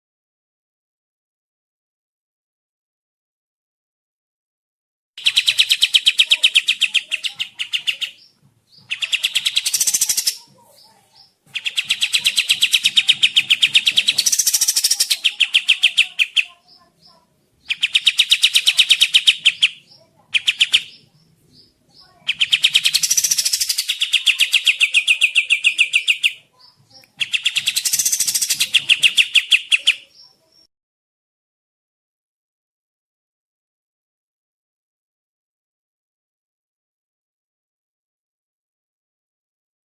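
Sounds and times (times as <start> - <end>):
songbird rattling song: 5.2 - 30.7.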